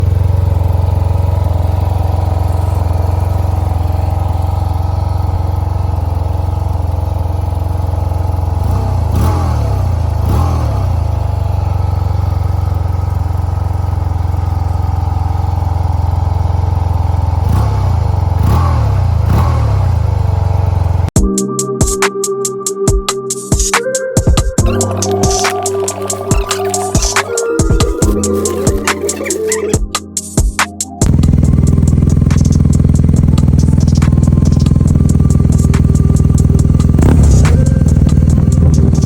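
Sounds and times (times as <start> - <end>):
motorcycle engine idling: 0.0 - 21.2, 31.0 - 39.0
throttle blips: 24.6 - 29.8.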